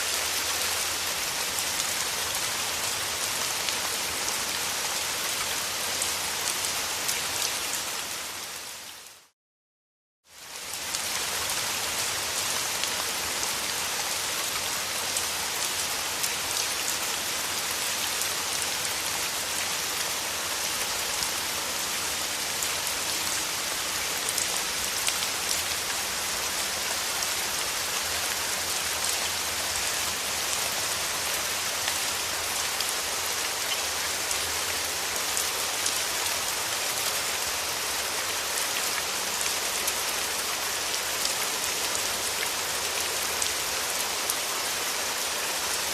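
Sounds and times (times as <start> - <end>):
steady rain hiss: 0.0 - 9.3, 10.3 - 45.9.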